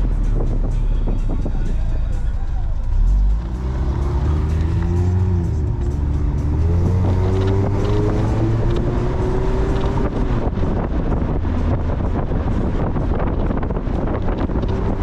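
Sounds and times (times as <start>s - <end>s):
car engine pulling: 2.4s - 15.0s
wind buffeting microphone: 6.7s - 15.0s.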